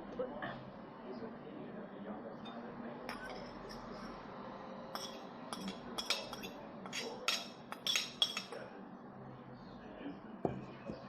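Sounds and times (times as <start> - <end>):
tableware clinking on plate: 2.5 - 4.2, 4.9 - 8.6.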